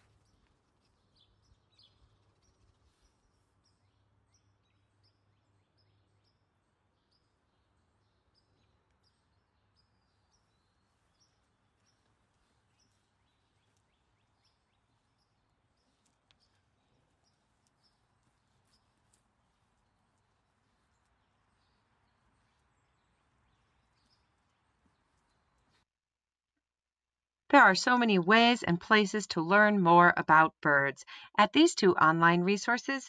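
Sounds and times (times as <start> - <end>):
faint bird chirping: 0.0 - 25.9
low steady hum: 27.5 - 33.0.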